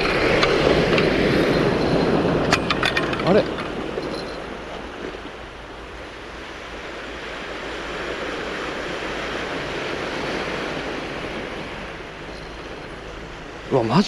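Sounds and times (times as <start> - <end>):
waves washing onto cobble beach: 0.0 - 14.0.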